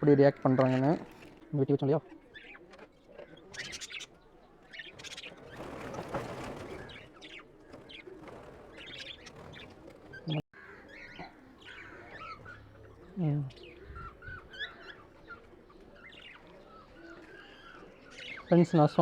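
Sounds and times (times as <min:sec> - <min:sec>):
birds chirping: 0:00.0 - 0:19.0
rustling: 0:04.7 - 0:10.4.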